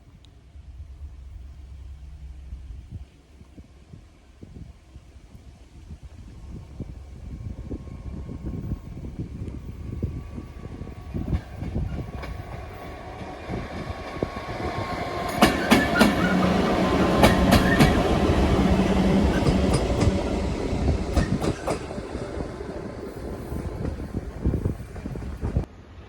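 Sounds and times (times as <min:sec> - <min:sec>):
low hum: 0:00.0 - 0:15.4
train wheels clacking: 0:11.1 - 0:25.7.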